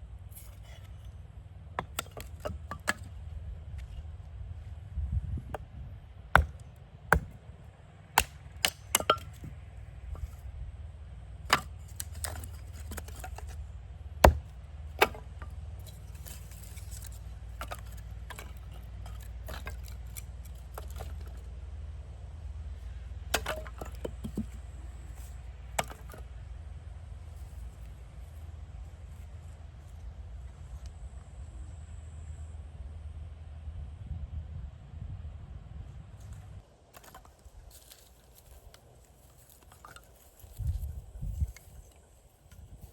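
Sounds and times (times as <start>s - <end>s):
wood knocks and cracks: 6.4s - 7.4s, 14.2s - 15.5s.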